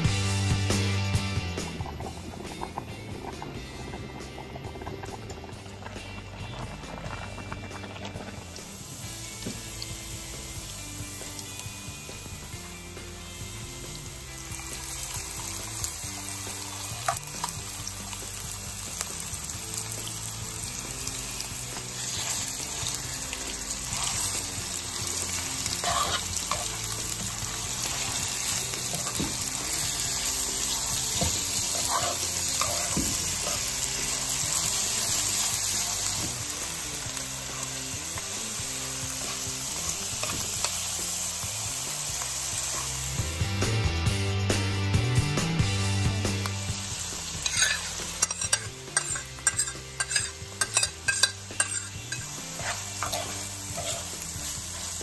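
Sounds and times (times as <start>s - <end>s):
food sizzling in a frying pan: 0.0s - 44.2s, 45.2s - 55.0s
metal spoon stirring: 25.6s - 26.8s, 31.6s - 33.7s, 47.4s - 54.9s.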